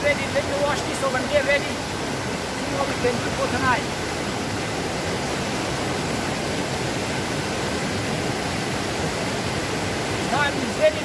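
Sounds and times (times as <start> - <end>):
waterfall and stream rushing: 0.0 - 11.0.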